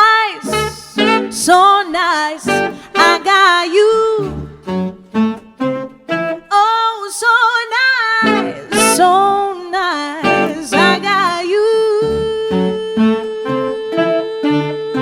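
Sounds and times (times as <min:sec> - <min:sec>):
person singing: 0:00.0 - 0:04.7, 0:06.5 - 0:15.0
swing band music: 0:00.4 - 0:06.4, 0:08.2 - 0:09.6, 0:10.2 - 0:15.0
plucked bass notes: 0:08.2 - 0:09.4, 0:10.2 - 0:13.9.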